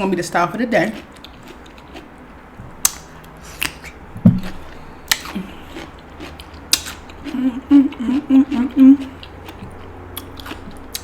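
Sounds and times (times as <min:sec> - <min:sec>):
person humming: 0:07.3 - 0:09.2.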